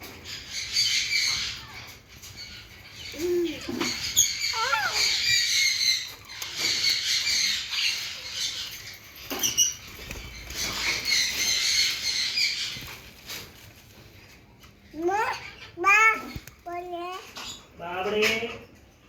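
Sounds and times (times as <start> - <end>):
small birds chirping: 0.0 - 19.0
lower bird calls: 0.4 - 13.5.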